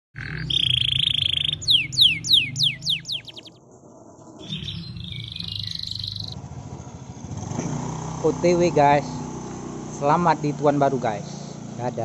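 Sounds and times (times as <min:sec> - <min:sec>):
songbird singing: 0:00.2 - 0:03.6, 0:04.2 - 0:06.6.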